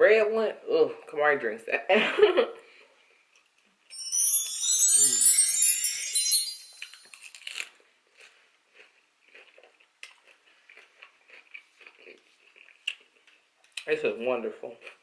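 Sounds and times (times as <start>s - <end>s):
chewing and crunching salad: 7.5s - 15.0s.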